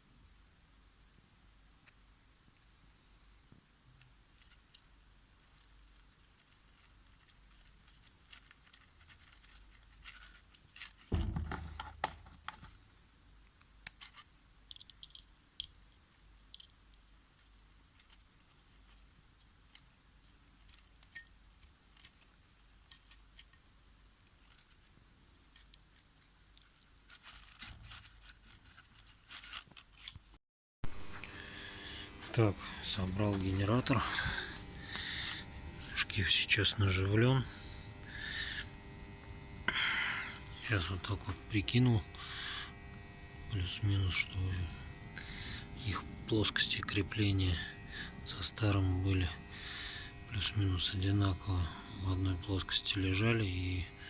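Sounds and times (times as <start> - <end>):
heavy knock: 11.1 - 12.1
small metal parts clinking: 14.0 - 15.3.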